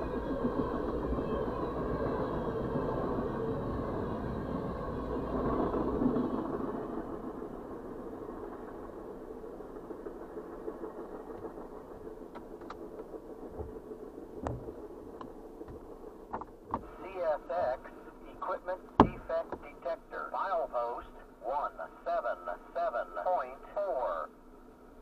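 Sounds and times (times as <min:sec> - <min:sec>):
train cars rolling past: 0:00.0 - 0:17.0
steady low hum: 0:00.0 - 0:25.0.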